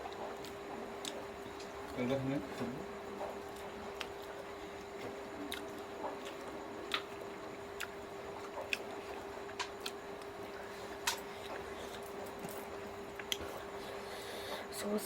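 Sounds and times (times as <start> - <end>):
steady electrical hum: 0.0 - 15.0
wet mouth chewing and smacking: 3.2 - 10.3.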